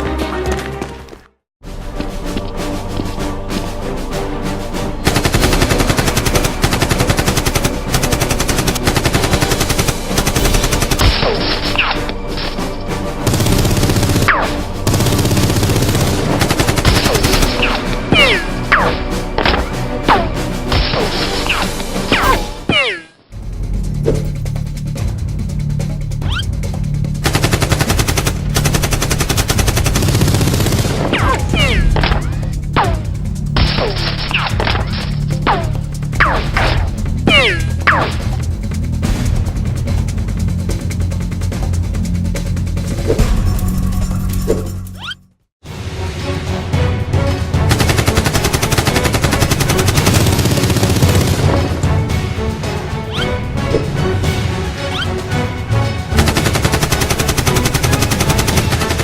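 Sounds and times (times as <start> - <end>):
action music: 0.0 - 59.0
machine-gun fire: 5.0 - 11.4, 13.2 - 17.9, 27.2 - 31.9, 47.7 - 51.6, 56.2 - 59.0.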